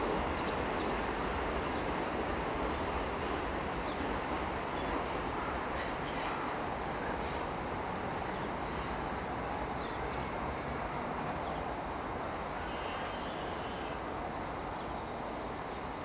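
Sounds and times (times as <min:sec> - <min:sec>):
distant electric train rumbling: 0:00.0 - 0:16.0.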